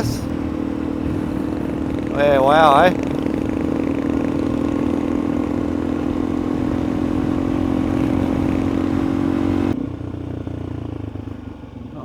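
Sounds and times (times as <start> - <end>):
rushing wind: 0.0 - 9.8
dirt bike engine cruising: 0.0 - 12.0
road rumble: 0.0 - 12.0.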